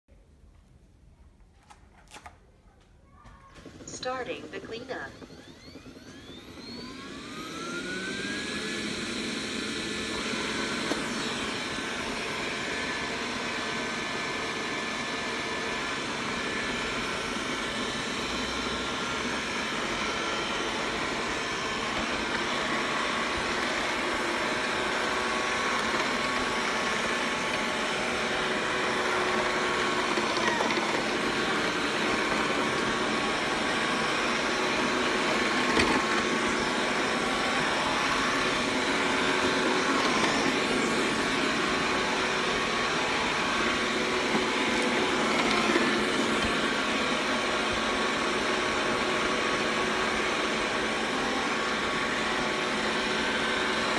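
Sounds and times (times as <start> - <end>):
robot vacuum fan whine: 3.5 - 53.9.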